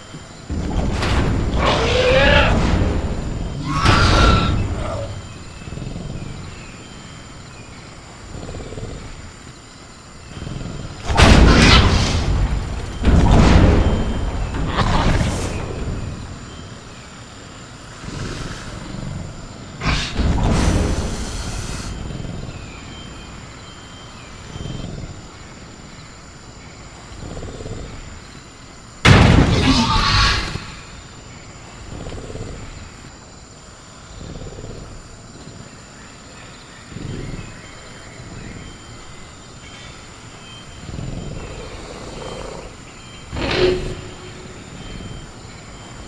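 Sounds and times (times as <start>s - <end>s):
insect calls: 0.0s - 46.0s
creature growls: 3.6s - 7.0s, 8.2s - 9.4s, 17.9s - 22.6s, 36.9s - 37.6s
faint bird chirps: 11.8s - 28.6s, 33.9s - 46.0s.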